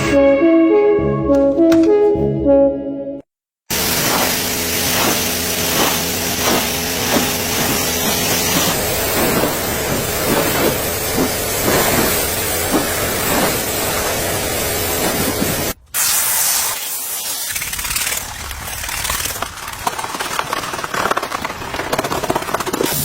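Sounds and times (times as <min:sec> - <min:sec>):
pressure washer spraying water: 0:03.7 - 0:19.4.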